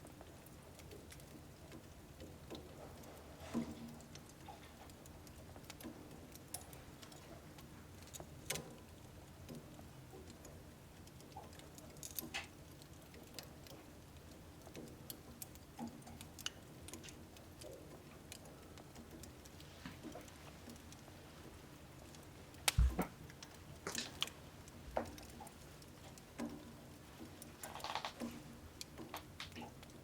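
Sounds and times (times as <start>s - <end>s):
wood fire crackling: 0.0s - 30.0s
sharp pops from fire: 22.6s - 25.4s.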